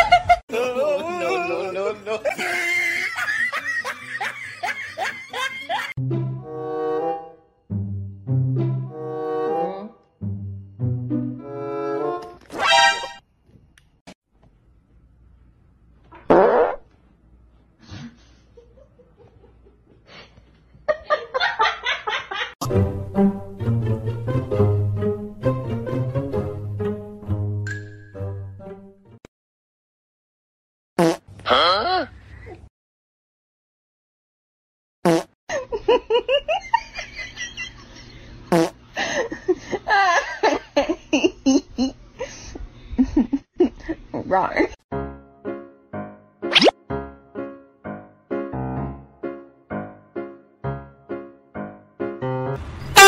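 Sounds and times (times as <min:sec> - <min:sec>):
person laughing: 0:00.0 - 0:06.0.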